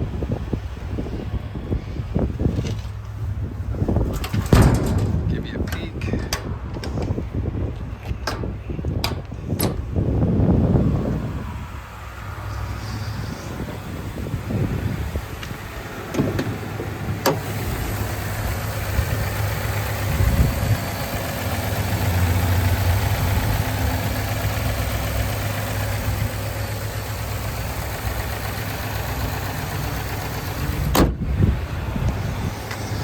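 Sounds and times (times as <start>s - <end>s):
truck engine idling: 0.0s - 33.0s.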